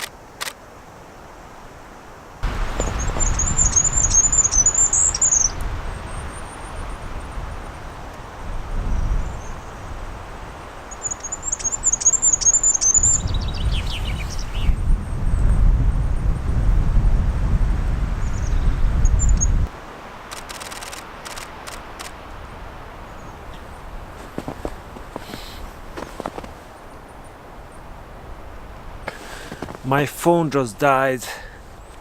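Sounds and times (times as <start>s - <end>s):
high thin bird song: 2.7s - 7.8s, 10.8s - 16.4s, 18.2s - 19.6s.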